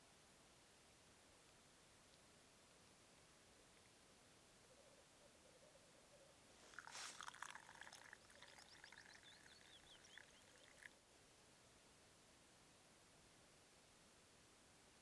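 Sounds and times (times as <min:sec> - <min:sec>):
faint bird song: 0:00.0 - 0:15.0
quick high bird chirps: 0:07.9 - 0:10.9.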